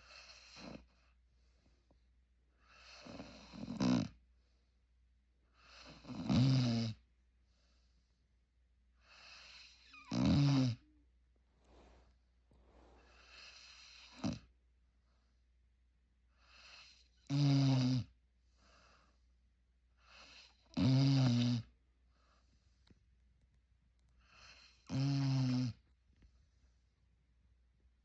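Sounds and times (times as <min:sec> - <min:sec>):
puppy snoring: 0:00.0 - 0:01.1, 0:02.6 - 0:04.2, 0:05.6 - 0:07.1, 0:09.0 - 0:11.0, 0:12.7 - 0:14.6, 0:16.4 - 0:19.0, 0:20.0 - 0:21.8, 0:24.2 - 0:25.9.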